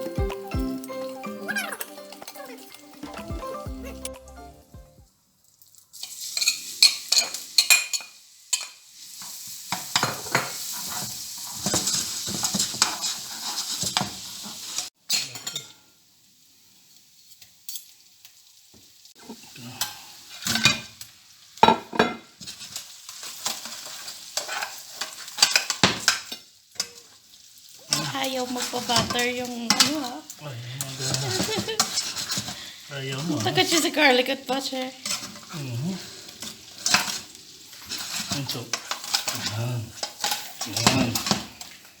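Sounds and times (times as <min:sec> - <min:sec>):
garlic sizzling in butter: 0:00.0 - 0:04.7, 0:05.3 - 0:42.0
utensil scraping a pan: 0:09.8 - 0:14.8, 0:22.4 - 0:26.2, 0:30.8 - 0:33.9, 0:35.0 - 0:41.8.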